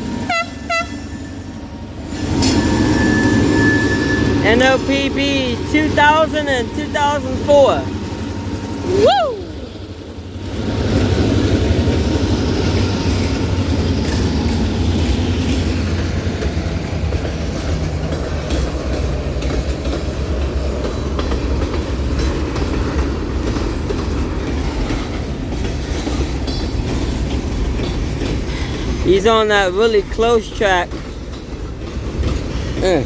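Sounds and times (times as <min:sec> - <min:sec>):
diesel locomotive engines rumbling: 0:00.0 - 0:33.0
wheels clicking over rail joints: 0:10.5 - 0:33.0.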